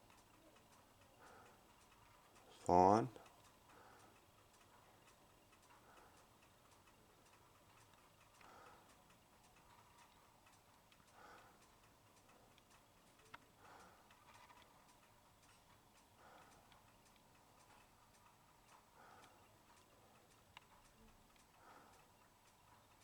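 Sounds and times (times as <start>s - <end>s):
faint even ticking: 0.0s - 23.0s.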